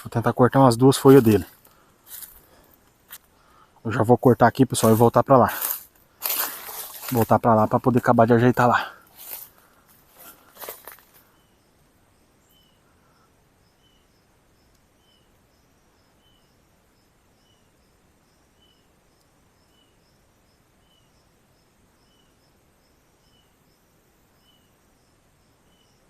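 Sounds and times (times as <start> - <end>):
soft hiss: 0.0 - 26.0
small chirping call: 11.2 - 21.4, 22.0 - 24.9.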